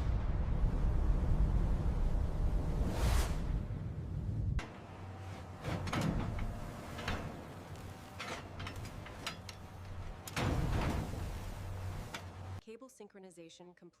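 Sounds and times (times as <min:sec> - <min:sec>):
low rumble: 0:00.0 - 0:12.6
sliding whooshes: 0:02.5 - 0:03.8.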